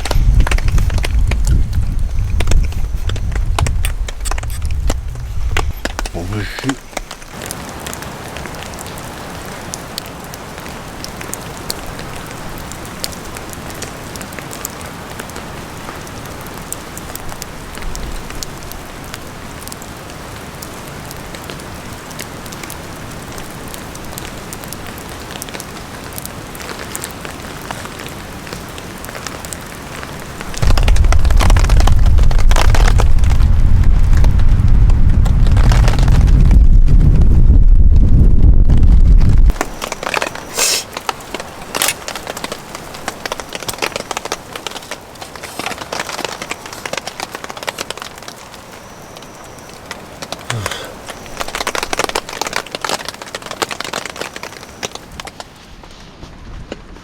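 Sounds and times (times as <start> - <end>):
wind gust buffeting microphone: 0.0 - 7.3, 30.6 - 40.5
steady rain: 0.0 - 57.0.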